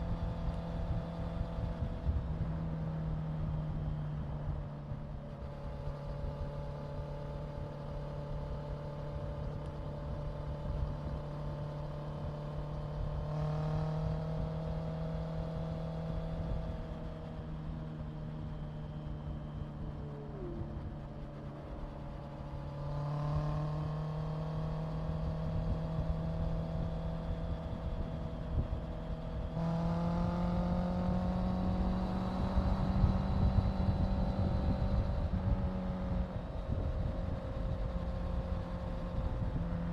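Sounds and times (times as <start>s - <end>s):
motorcycle engine revving: 28.8s - 39.9s.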